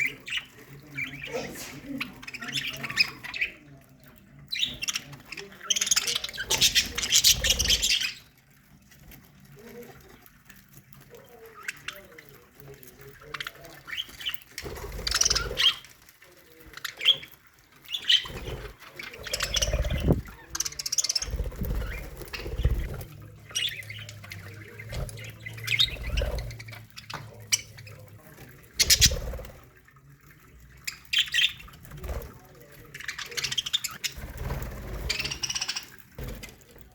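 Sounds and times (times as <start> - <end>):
budgerigars chattering: 4.5 - 8.3, 13.5 - 15.9, 17.0 - 29.4, 35.0 - 36.1.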